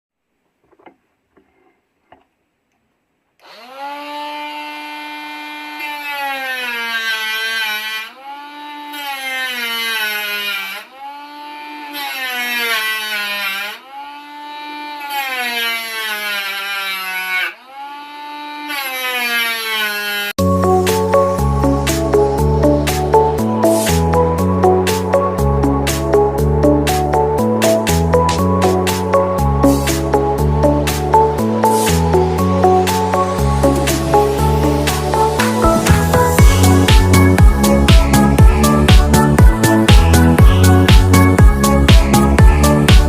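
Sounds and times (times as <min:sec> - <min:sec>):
electric power tool motor: 0:03.4 - 0:20.4.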